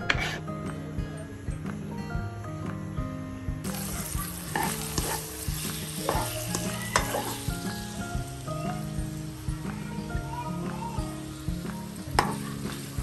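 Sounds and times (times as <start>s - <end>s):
utensil scraping a pan: 0.0s - 0.5s, 3.7s - 7.5s
meat sizzling in a pan: 3.6s - 13.0s.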